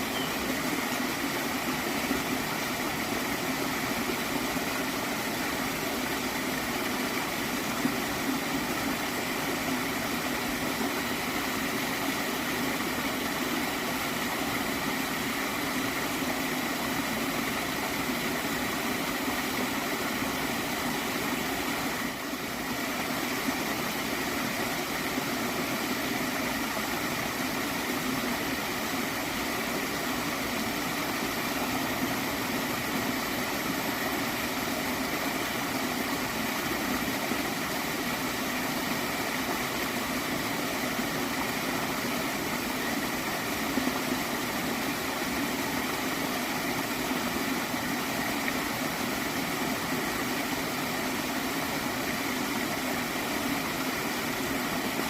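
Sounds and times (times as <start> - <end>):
gentle water stream flowing: 0.0 - 55.0.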